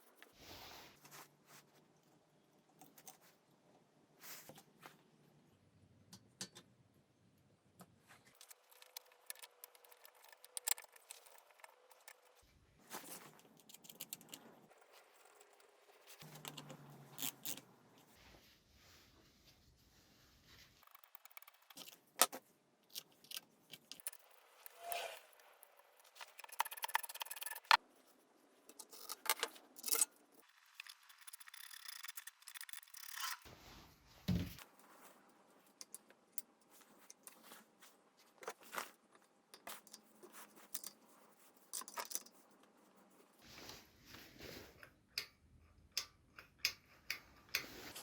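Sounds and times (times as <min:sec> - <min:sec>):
tools clicking and tapping: 0:06.1 - 0:06.7, 0:20.8 - 0:22.0, 0:26.0 - 0:27.8, 0:44.8 - 0:48.0.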